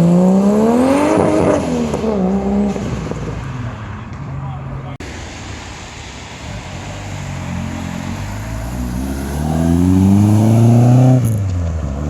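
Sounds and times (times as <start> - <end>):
car engine accelerating: 5.4 - 12.0.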